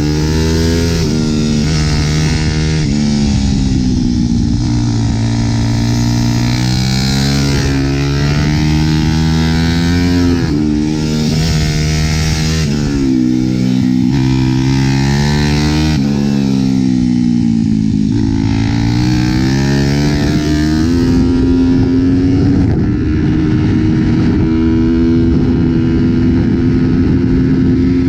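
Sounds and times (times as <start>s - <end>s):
motorbike engine running hard: 0.0s - 28.0s.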